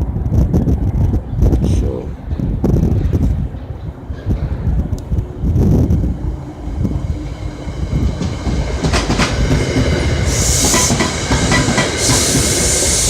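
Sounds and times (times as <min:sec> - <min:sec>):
train wheels clacking on rails: 0:02.2 - 0:13.0
high hiss: 0:06.5 - 0:13.0.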